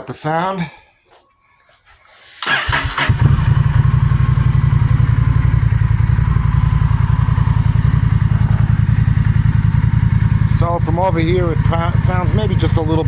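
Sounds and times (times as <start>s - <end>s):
motorcycle starter cranking: 2.4s - 13.0s
motorcycle engine idling: 2.5s - 13.0s.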